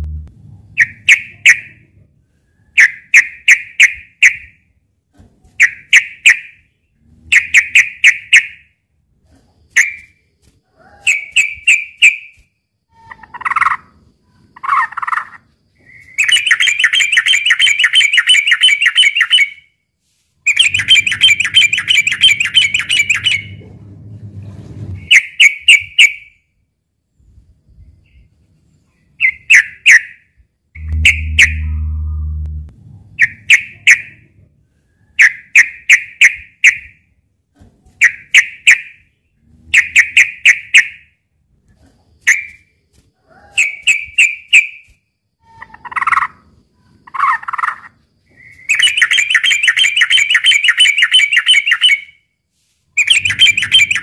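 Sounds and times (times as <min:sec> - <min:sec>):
bird chattering runs: 0:20.5 - 0:23.6, 0:53.0 - 0:54.0.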